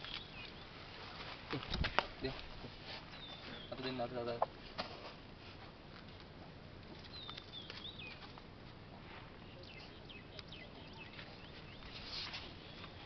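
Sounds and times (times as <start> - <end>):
bird chirps: 0.0 - 0.8, 3.1 - 4.5, 7.0 - 8.3, 9.4 - 13.0
soft scuffs and clicks: 7.0 - 13.0.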